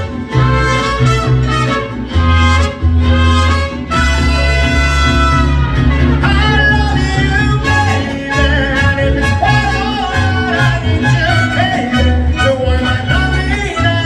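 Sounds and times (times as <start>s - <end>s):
bowed violins melody: 0.0s - 11.9s
deep bass line: 0.0s - 14.0s.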